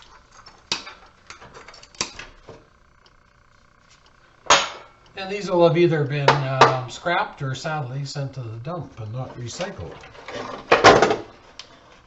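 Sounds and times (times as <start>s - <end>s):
metal parts clicking and clinking: 1.3s - 2.0s.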